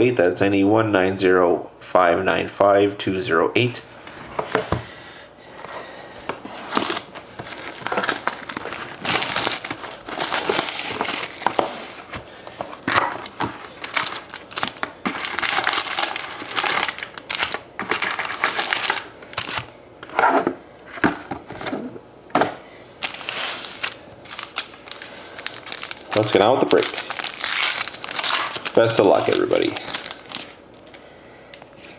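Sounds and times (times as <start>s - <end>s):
plastic wrapping crinkling and tearing: 6.6s - 19.7s, 23.0s - 31.0s.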